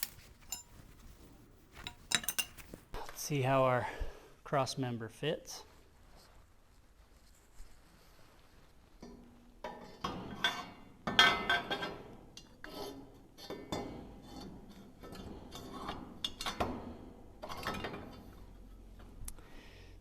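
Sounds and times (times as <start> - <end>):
metal clanks and scrapes: 0.0 - 3.0, 9.7 - 18.8.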